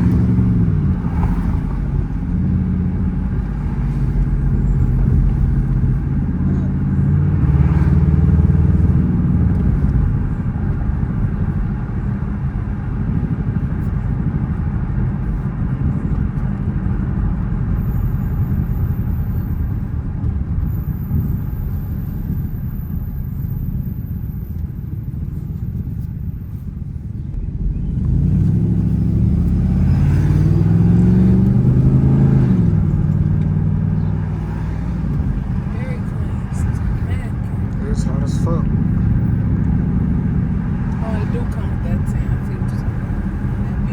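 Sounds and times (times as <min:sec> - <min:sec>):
car engine rumbling and revving: 0:00.0 - 0:43.9.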